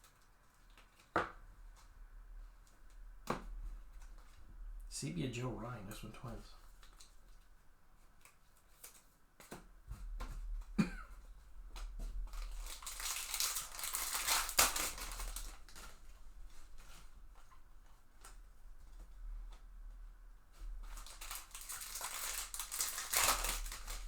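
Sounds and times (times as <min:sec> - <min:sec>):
cards clicking and tapping: 0:08.2 - 0:10.4
foil wrapper crinkling and tearing: 0:12.2 - 0:16.1, 0:20.7 - 0:24.0.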